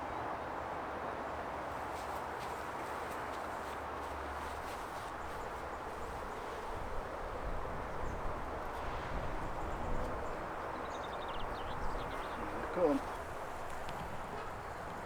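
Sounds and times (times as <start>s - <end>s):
wind rumbling on microphone: 6.0s - 15.0s.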